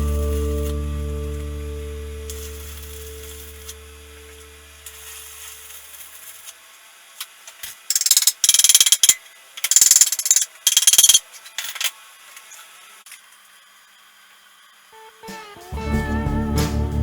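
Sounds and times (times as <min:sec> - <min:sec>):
rasping clicking tool work: 0:07.2 - 0:12.0.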